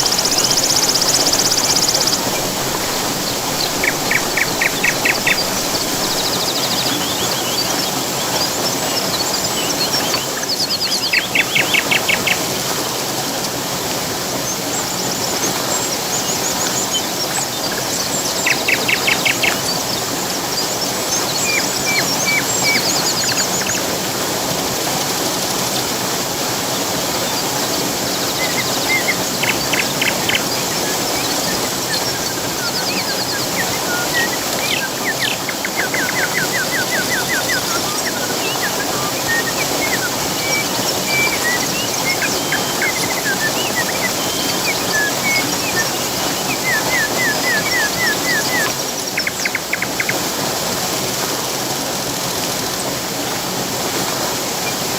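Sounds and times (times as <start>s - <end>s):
bird trills: 0.0s - 7.8s, 16.1s - 19.9s, 28.3s - 50.2s
birds chirping: 0.0s - 12.8s, 14.2s - 24.1s, 27.1s - 51.1s
waterfall rushing: 0.0s - 54.9s.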